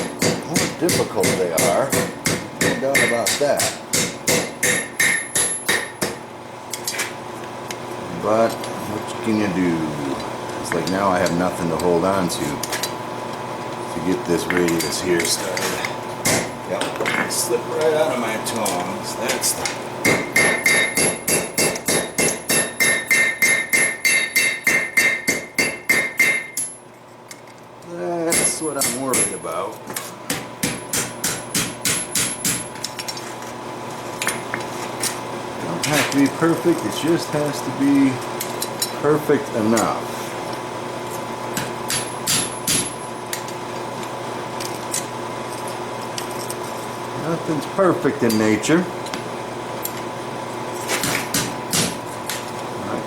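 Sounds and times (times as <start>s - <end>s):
hammer striking steel on anvil: 0.0s - 6.2s, 16.2s - 16.5s, 20.0s - 26.8s, 28.3s - 29.5s, 30.3s - 32.8s, 41.6s - 43.1s.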